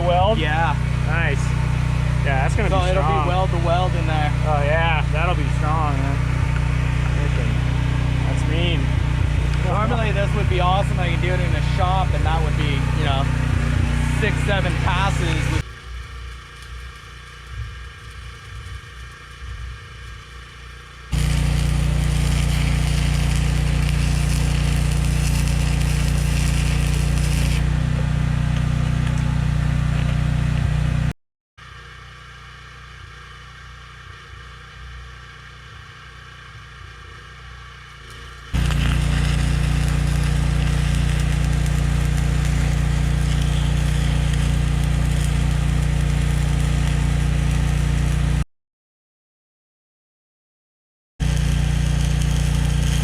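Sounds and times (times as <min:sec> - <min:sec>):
welding arc crackling: 0:00.0 - 0:31.1, 0:31.8 - 0:48.4, 0:51.2 - 0:53.0
engine drone: 0:00.0 - 0:48.4, 0:51.2 - 0:53.0.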